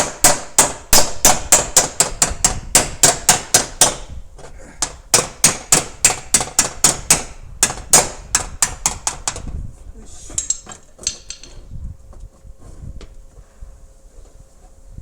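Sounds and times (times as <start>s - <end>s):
hammer striking sheet metal: 0.0s - 4.1s, 4.8s - 9.4s.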